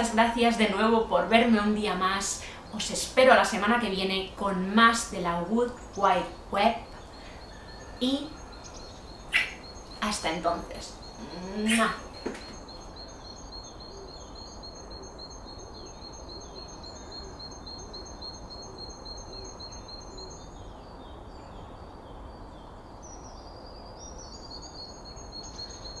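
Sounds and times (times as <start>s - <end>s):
birds chirping: 0.0s - 26.0s
outdoor background hiss: 0.0s - 26.0s.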